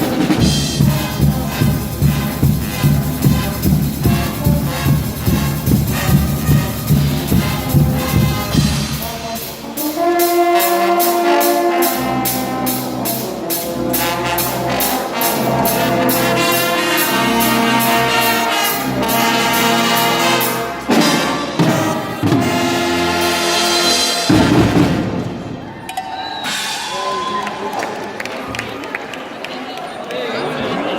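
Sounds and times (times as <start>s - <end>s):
brass band playing: 0.0s - 27.7s
drums and percussion: 0.0s - 28.5s.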